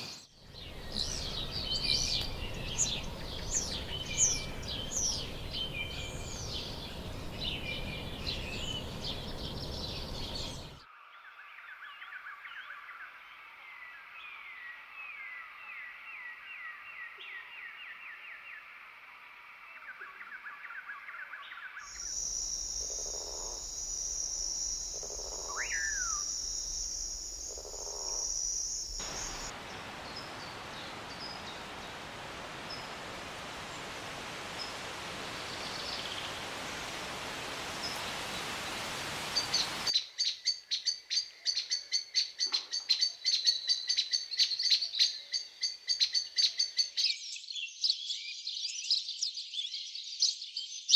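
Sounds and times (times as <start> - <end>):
bird chirps: 0.0 - 10.8, 21.6 - 31.9
even hiss: 0.0 - 10.8, 21.9 - 39.9
high-pitched insect buzz: 21.9 - 29.5
rising and falling bird call: 21.9 - 39.9.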